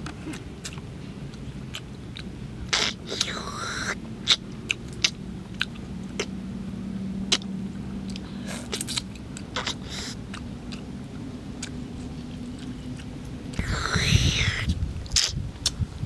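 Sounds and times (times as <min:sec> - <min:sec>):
person chewing food: 0:00.0 - 0:03.5, 0:04.2 - 0:06.4, 0:07.3 - 0:13.8
low steady hum: 0:00.0 - 0:16.0.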